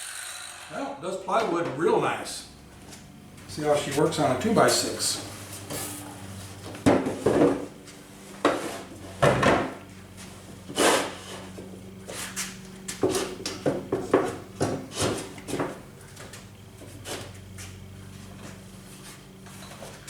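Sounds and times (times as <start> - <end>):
board and saw knocks and clunks: 6.7 - 7.8, 8.4 - 9.9, 12.9 - 15.8.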